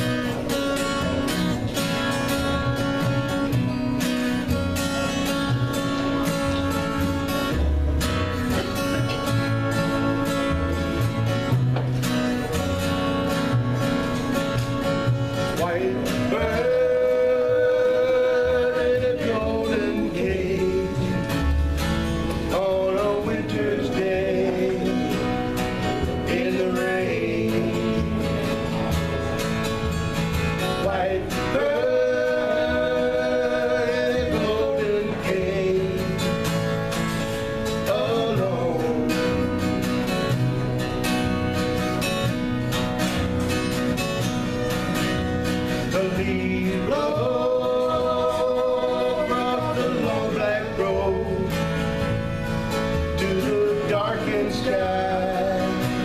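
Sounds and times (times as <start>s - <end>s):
acoustic guitar strumming: 0.0s - 56.0s
man singing: 15.4s - 21.6s, 22.3s - 29.0s, 30.7s - 36.6s, 37.7s - 39.7s, 45.8s - 51.9s, 53.0s - 56.0s.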